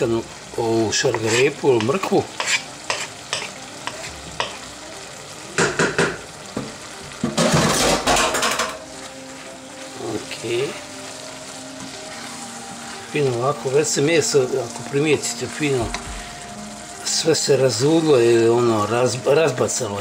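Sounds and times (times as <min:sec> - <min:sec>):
meat sizzling in a saucepan: 0:00.0 - 0:20.0
wooden spoon scraping: 0:01.0 - 0:04.6, 0:09.0 - 0:16.4.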